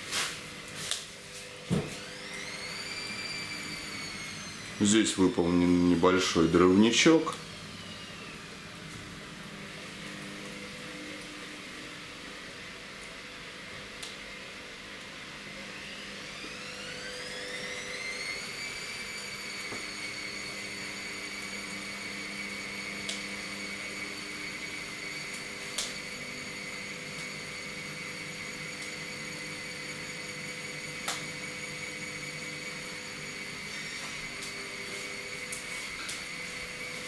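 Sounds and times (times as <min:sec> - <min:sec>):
small motor whine: 0:00.0 - 0:37.0.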